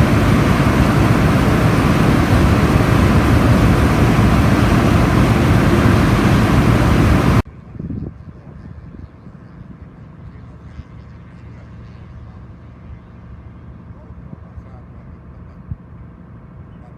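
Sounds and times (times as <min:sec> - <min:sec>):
diesel engine running loudly: 0:00.0 - 0:07.4
low rumble: 0:00.0 - 0:07.4.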